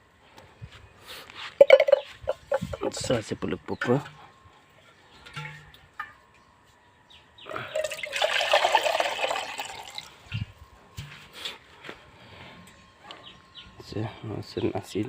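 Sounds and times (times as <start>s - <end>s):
liquid pouring or splashing: 7.7s - 10.3s.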